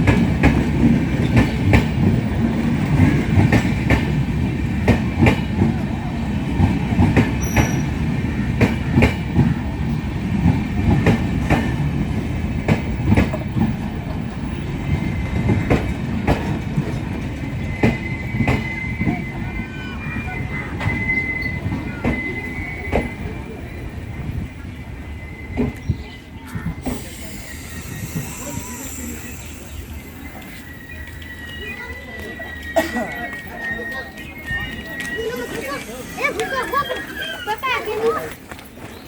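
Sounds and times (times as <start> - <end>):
wheels clacking over rail joints: 0.0 - 19.4
train coaches rumbling: 0.0 - 39.0.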